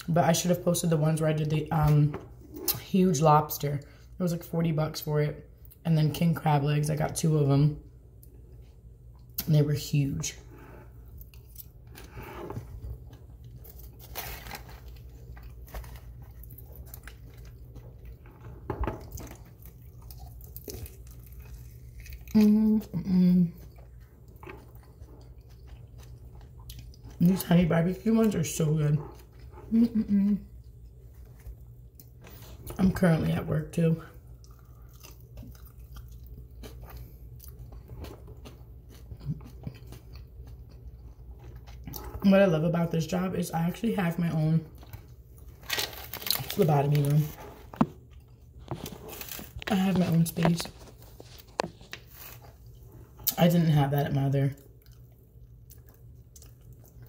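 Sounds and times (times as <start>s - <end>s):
low steady hum: 0.0s - 57.0s
chewing food: 10.2s - 33.0s, 34.0s - 42.6s, 43.5s - 57.0s.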